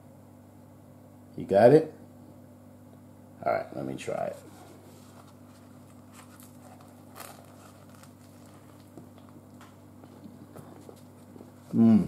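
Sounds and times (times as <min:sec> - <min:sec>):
steady low hum: 0:00.0 - 0:12.0
faint chewing: 0:05.7 - 0:11.7.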